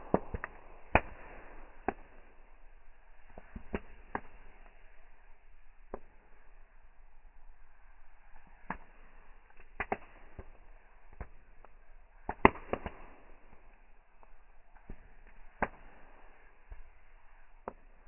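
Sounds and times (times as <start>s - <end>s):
burning wood popping and cracking: 0.0s - 2.1s, 8.5s - 15.9s.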